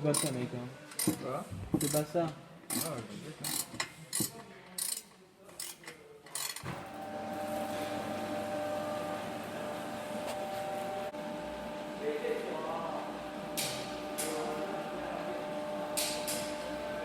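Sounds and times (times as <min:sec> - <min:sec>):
mechanical hum with whine: 0:06.7 - 0:17.0.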